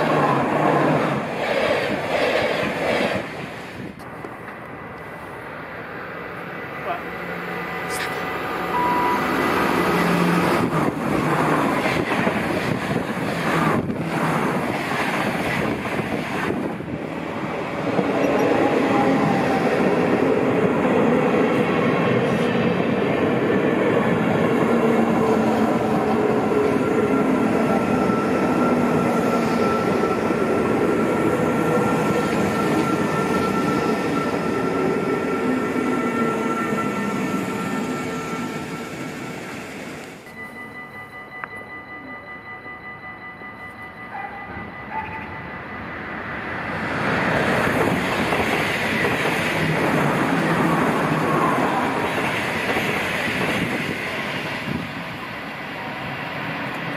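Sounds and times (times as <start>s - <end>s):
train rattling past: 0.0s - 56.9s
sustained tones: 6.6s - 10.4s, 40.2s - 47.6s.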